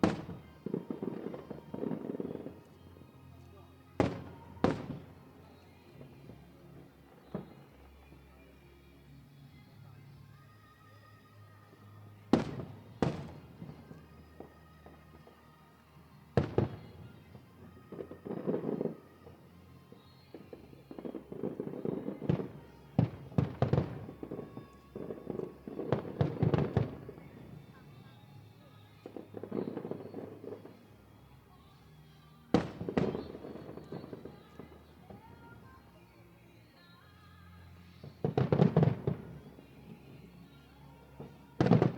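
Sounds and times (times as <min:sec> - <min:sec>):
firework bangs with echo: 0:00.0 - 0:02.7, 0:04.0 - 0:06.3, 0:12.3 - 0:14.0, 0:16.4 - 0:19.4, 0:20.3 - 0:28.1, 0:32.5 - 0:35.8, 0:38.1 - 0:40.3, 0:41.2 - 0:41.9
faint background music: 0:00.0 - 0:41.9.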